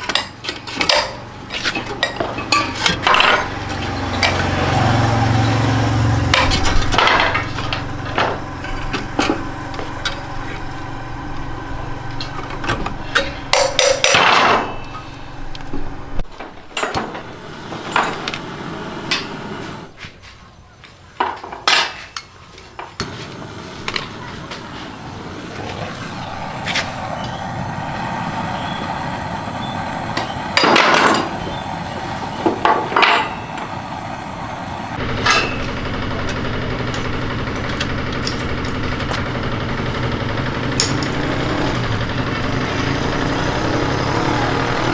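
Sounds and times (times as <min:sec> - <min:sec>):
hand tools knocking and clattering: 0:00.0 - 0:19.5, 0:30.2 - 0:31.7, 0:35.0 - 0:44.0.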